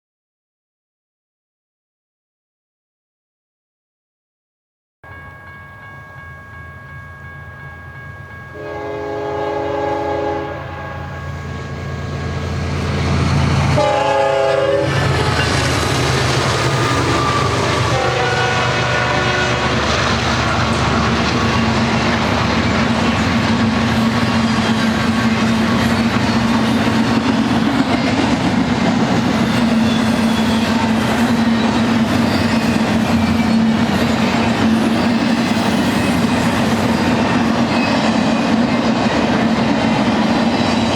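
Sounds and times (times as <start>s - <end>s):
train rumbling past: 5.1s - 40.9s
train air horn blasts: 8.6s - 11.3s, 13.7s - 15.3s, 16.8s - 19.9s
wheels clacking over rail joints: 14.9s - 40.9s.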